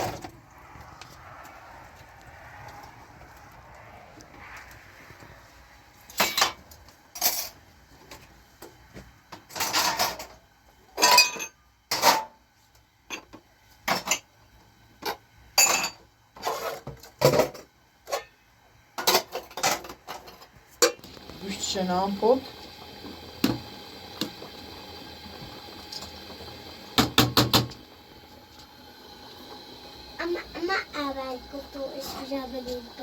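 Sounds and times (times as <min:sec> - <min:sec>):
pots and dishes clinking: 0:06.1 - 0:06.6, 0:09.4 - 0:10.4, 0:11.0 - 0:12.4, 0:13.1 - 0:14.3, 0:15.0 - 0:18.4, 0:19.0 - 0:21.2.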